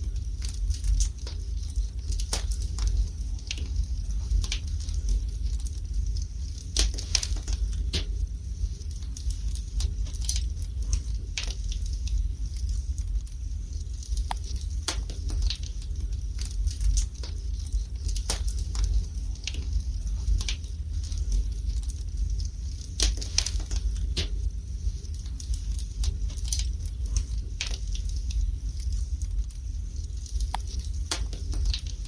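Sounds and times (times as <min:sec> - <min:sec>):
fire crackling in a fireplace: 0:00.0 - 0:32.0
low steady rumble: 0:00.0 - 0:32.0
sharp pops of fire: 0:00.4 - 0:05.7, 0:06.6 - 0:08.3, 0:08.9 - 0:11.9, 0:14.0 - 0:21.9, 0:22.9 - 0:24.5, 0:25.2 - 0:28.2, 0:30.2 - 0:32.0.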